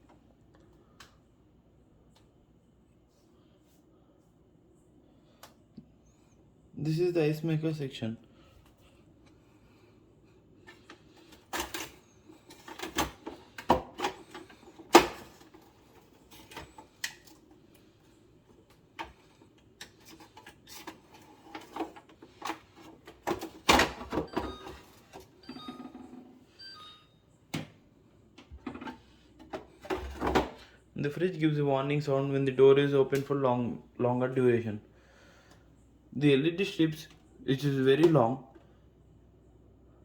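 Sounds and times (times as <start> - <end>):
refrigerator drawers clicking and knocking: 28.4 - 30.7.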